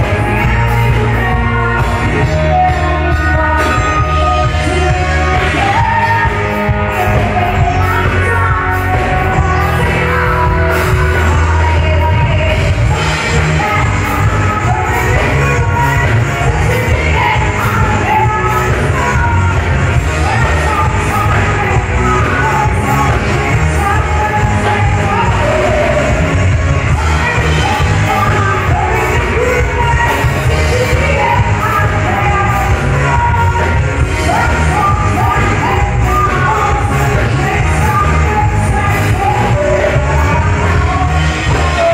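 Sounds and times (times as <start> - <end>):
live rock band playing: 0.0 - 41.9
person singing: 0.0 - 41.9.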